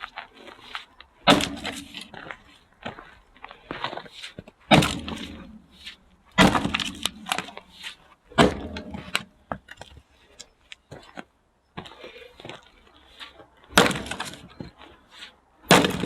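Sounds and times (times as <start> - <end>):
axe splitting firewood: 1.2 - 2.3, 4.7 - 5.6, 6.4 - 7.7, 8.3 - 9.4, 13.7 - 14.8, 15.6 - 16.0
split wood clattering down: 6.4 - 7.6, 13.8 - 14.5, 15.7 - 16.0.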